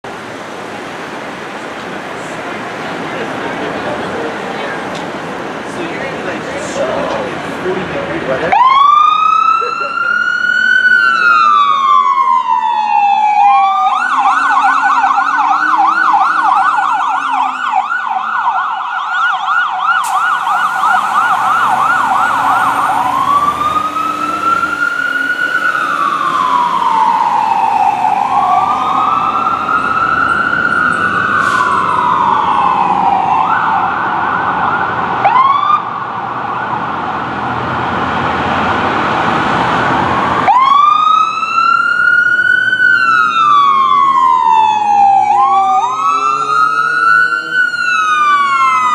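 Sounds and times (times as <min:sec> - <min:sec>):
heavy truck engine rumbling: 0:00.0 - 0:10.5, 0:14.2 - 0:35.4, 0:36.0 - 0:41.2
fire truck siren wailing and yelping: 0:08.3 - 0:48.9.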